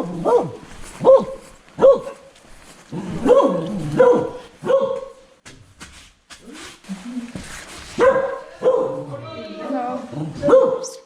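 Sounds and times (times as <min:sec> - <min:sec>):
dog barking: 0:00.0 - 0:02.3, 0:03.2 - 0:05.3, 0:08.0 - 0:09.1, 0:10.4 - 0:11.0.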